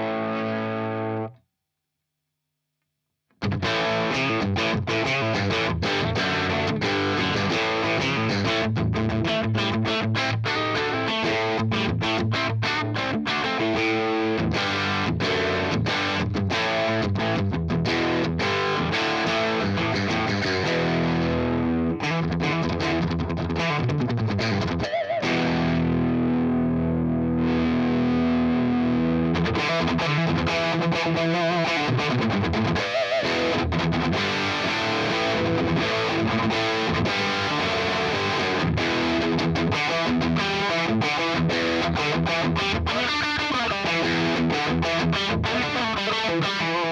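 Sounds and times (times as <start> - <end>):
distorted electric guitar: 0.0 - 1.4, 3.4 - 46.9.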